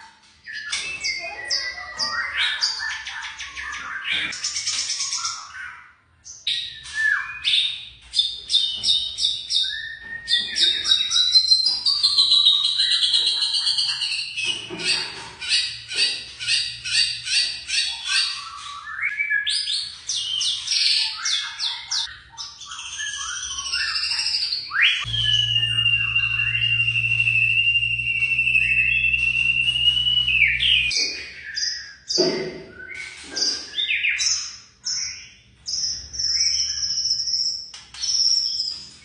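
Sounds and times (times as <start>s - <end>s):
bird singing whistles and trills: 0.4s - 39.0s
low hum: 25.1s - 31.0s.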